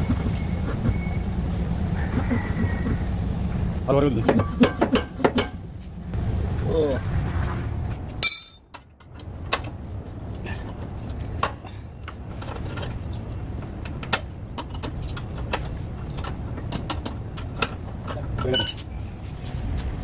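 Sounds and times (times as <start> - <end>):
steady low rumble: 0.0 - 8.2
ringing metal clank: 8.2 - 8.8.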